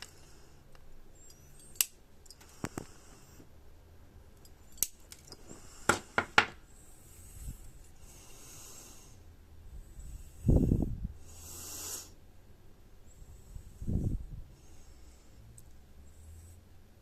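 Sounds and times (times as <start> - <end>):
side cutters snipping wire leads: 1.6 - 2.4, 4.8 - 5.4.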